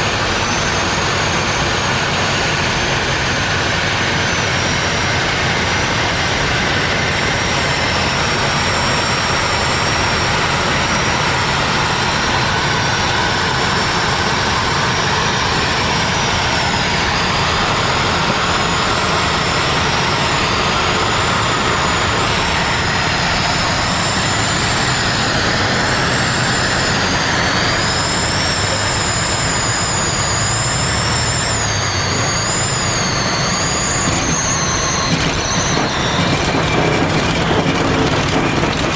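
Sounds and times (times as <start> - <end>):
propeller plane engine drone: 0.0 - 38.9
wavering high tones: 27.5 - 38.9.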